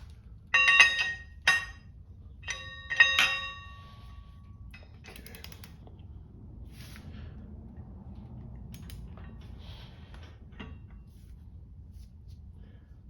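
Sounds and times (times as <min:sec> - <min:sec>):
metal tools clinking: 0:00.6 - 0:04.0
small clicks: 0:05.1 - 0:05.8.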